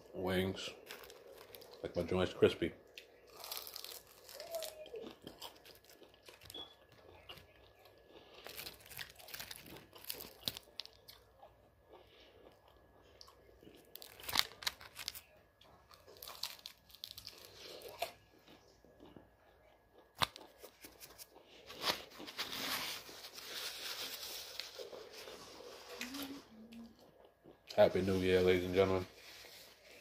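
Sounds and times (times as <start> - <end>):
crunching and chewing: 0.5 - 2.2, 2.8 - 28.0.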